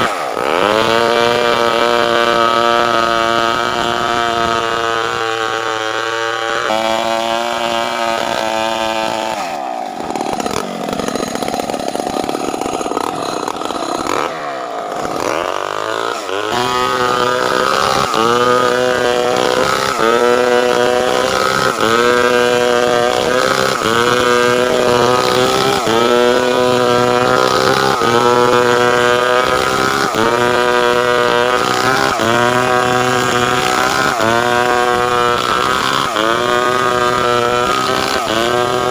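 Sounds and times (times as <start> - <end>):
chainsaw cutting timber: 0.0 - 38.9.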